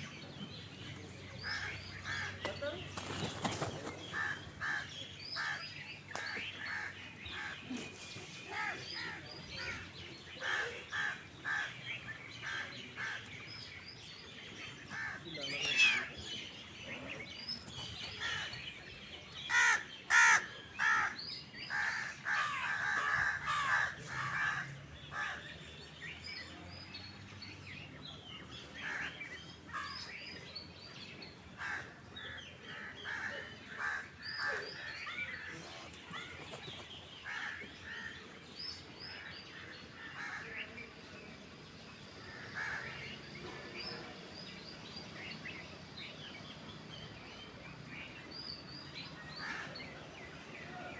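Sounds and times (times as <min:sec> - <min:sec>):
harsh bird calls: 0:00.0 - 0:26.6.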